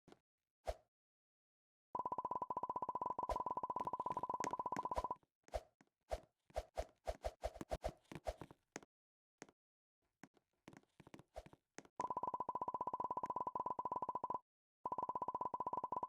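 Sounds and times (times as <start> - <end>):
fast electronic beeps: 3.0 - 5.2.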